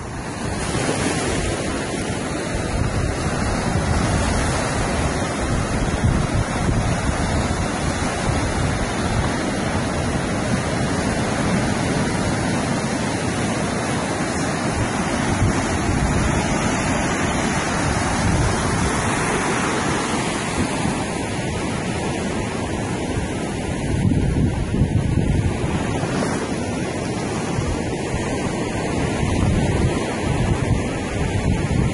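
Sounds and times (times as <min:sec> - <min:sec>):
ocean surf washing onto beach: 0:00.0 - 0:31.9
wind buffeting microphone: 0:00.0 - 0:31.9.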